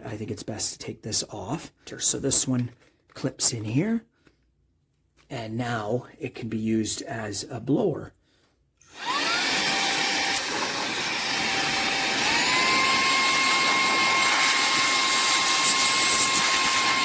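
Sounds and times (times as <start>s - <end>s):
handheld vacuum motor whining: 8.9s - 17.0s.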